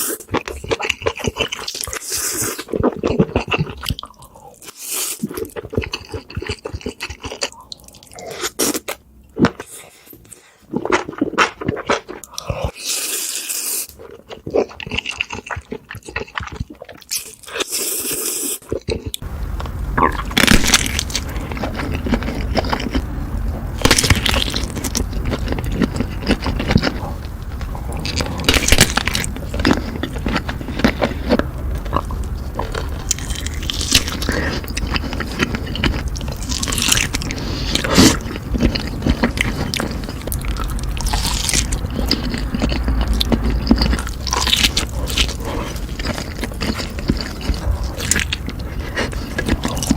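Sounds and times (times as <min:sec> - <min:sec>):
crunchy chewing: 0:00.0 - 0:49.9
steady low hum: 0:19.2 - 0:49.9.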